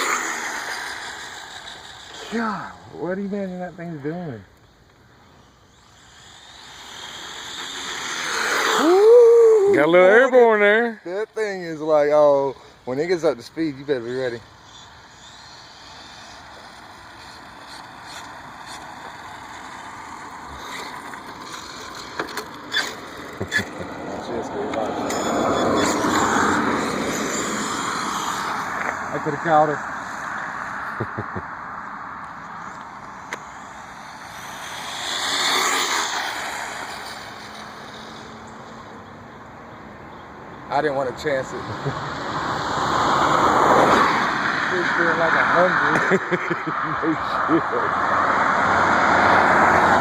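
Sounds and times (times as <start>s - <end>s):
electric toy car motor whine: 0.0s - 3.2s, 5.2s - 9.9s, 14.1s - 24.0s, 24.9s - 30.7s, 32.7s - 39.0s.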